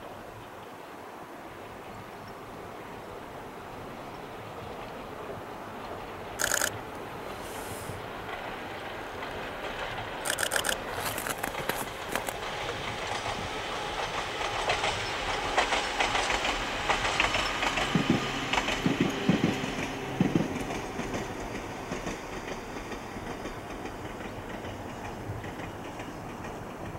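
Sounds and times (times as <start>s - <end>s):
train wheels clattering over rail joints: 5.8s - 26.9s.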